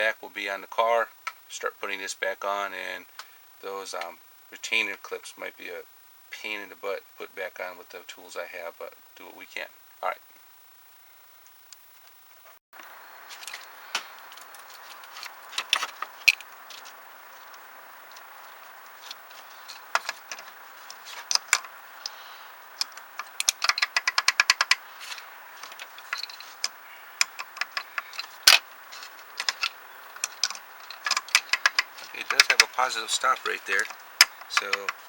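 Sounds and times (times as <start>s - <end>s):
metal parts clicking and clinking: 19.0s - 22.2s, 22.8s - 35.0s.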